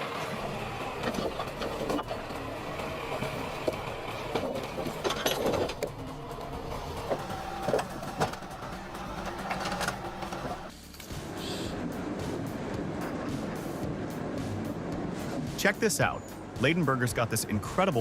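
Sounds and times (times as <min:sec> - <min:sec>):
heavy machinery running: 0:00.0 - 0:17.4
clattering knocks and clicks: 0:00.2 - 0:11.1.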